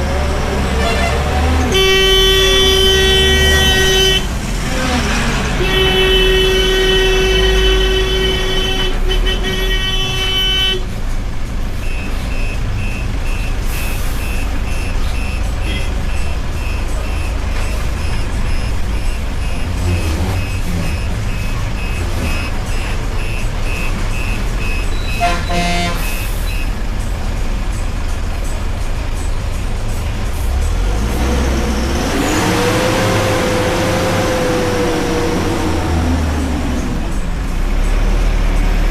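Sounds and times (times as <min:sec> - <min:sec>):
heavy vehicle engines rumbling: 0:00.0 - 0:38.9
vehicle horn blast: 0:00.7 - 0:04.4, 0:05.6 - 0:10.9, 0:15.6 - 0:16.0, 0:24.6 - 0:26.6.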